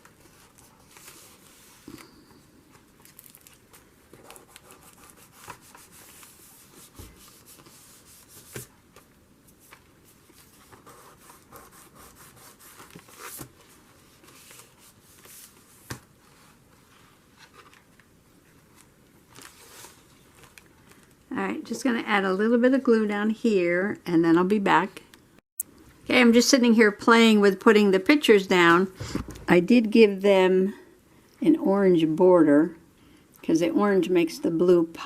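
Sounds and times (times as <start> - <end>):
paper rustling: 0.0 - 2.1, 2.8 - 21.1.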